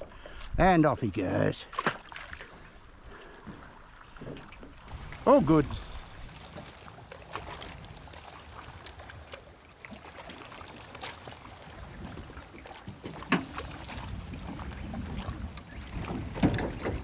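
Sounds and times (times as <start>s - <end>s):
water slapping against boat hull: 4.9s - 17.0s
wind buffeting microphone: 4.9s - 17.0s.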